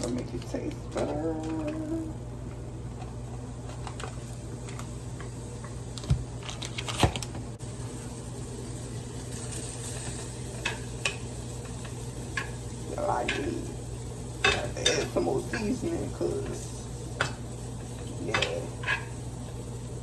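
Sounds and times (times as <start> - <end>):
utensils tapping and clicking: 10.6 - 13.8, 14.4 - 19.6.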